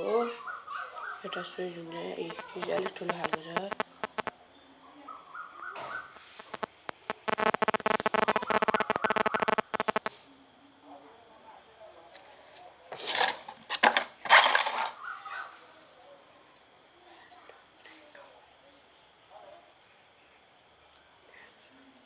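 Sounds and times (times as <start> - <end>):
crickets chirring: 0.0 - 22.0
loud rapid pulsing: 6.4 - 10.1
loud rustling: 12.9 - 15.0.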